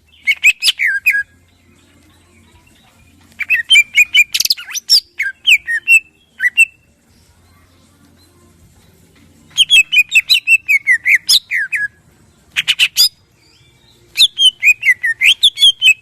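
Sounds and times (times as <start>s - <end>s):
bird singing: 0.0s - 7.0s, 9.4s - 16.0s.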